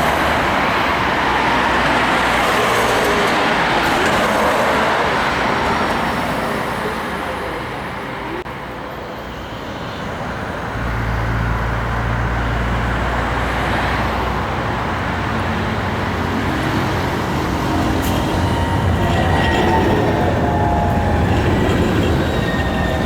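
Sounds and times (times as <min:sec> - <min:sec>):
road traffic: 0:00.0 - 0:23.0
heavy vehicle low hum: 0:14.4 - 0:23.0
thin high squealing tones: 0:17.4 - 0:23.0.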